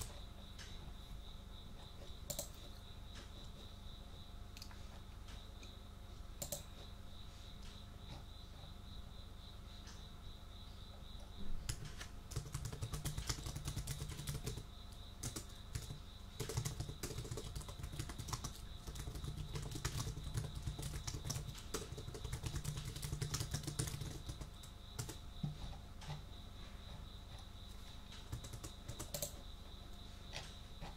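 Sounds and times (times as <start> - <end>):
typing on a computer keyboard: 0.0 - 0.2, 2.2 - 2.7, 6.4 - 6.7, 11.6 - 25.5, 28.1 - 29.4
cricket chirring: 0.0 - 30.9.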